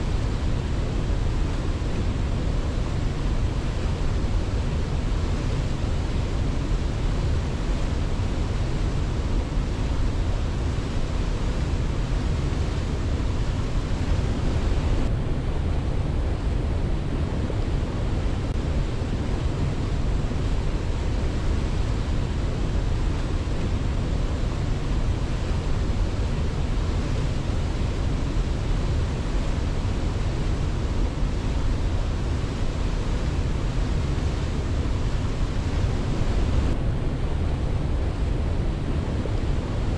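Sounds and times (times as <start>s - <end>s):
rushing water: 0.0s - 15.1s, 17.5s - 37.0s.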